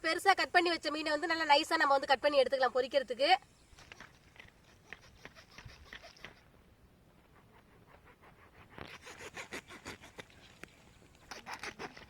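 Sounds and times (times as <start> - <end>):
knife sawing through fish: 7.6 - 10.2.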